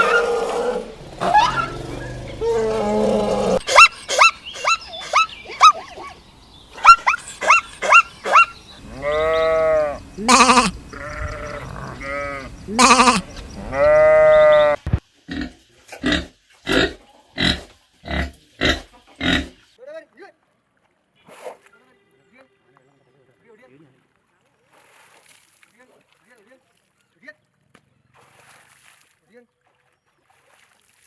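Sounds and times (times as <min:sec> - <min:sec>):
squeaky animal calls: 0:00.0 - 0:14.8
short animal grunts: 0:06.8 - 0:14.7
goats or sheep bleating: 0:08.8 - 0:14.8.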